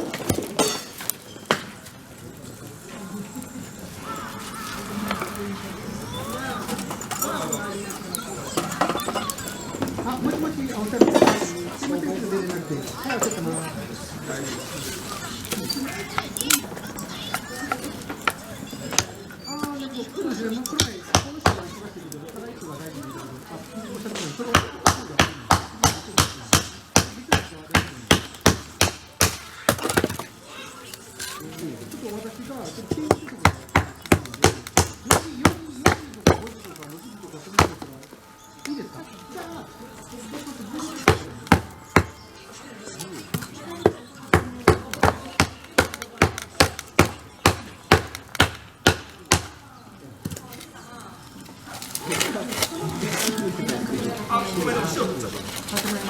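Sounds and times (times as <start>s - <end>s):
rapid sharp knocks: 24.5s - 30.1s, 44.3s - 49.6s
wood chopping knocks: 32.9s - 36.7s, 37.6s - 38.0s, 41.1s - 42.2s, 43.4s - 49.6s.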